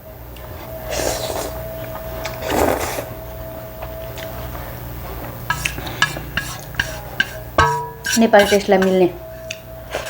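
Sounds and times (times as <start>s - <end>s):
noodles being slurped: 2.2s - 3.2s.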